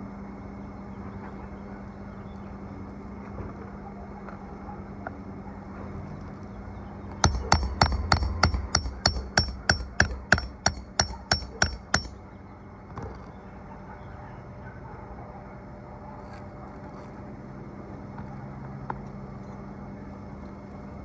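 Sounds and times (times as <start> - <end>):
hammer striking nails: 7.2 - 12.2.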